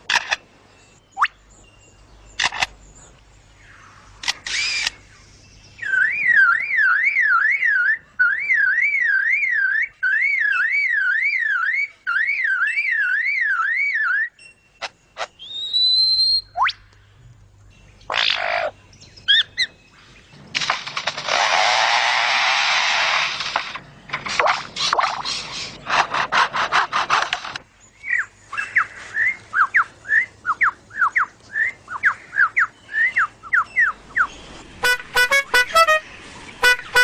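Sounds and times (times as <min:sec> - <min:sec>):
bird whistles: 0:05.8 - 0:14.6, 0:15.2 - 0:16.8
lyrebird warbling call: 0:18.1 - 0:19.7
rough bird call burst: 0:34.2 - 0:37.0.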